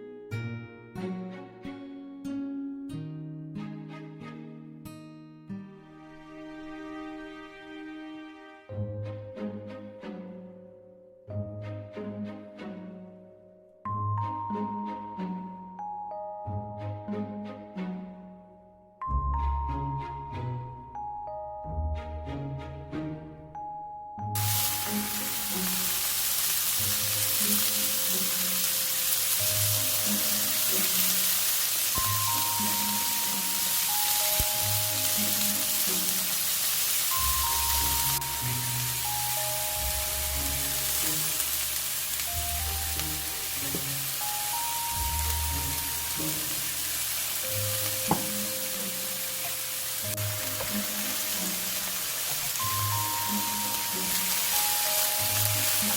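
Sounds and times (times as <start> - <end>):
background music: 0.0 - 55.9
food sizzling in a pan: 24.4 - 55.9.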